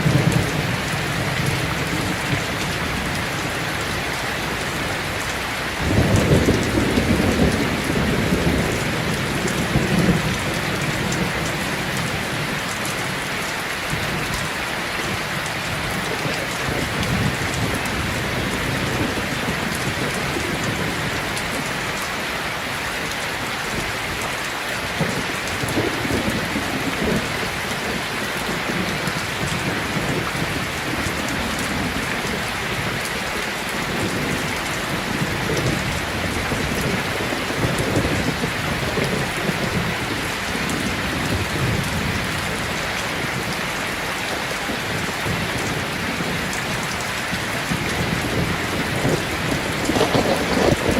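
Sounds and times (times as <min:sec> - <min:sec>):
rain pattering: 0:00.0 - 0:50.9
distant thunder rolls: 0:47.7 - 0:50.9.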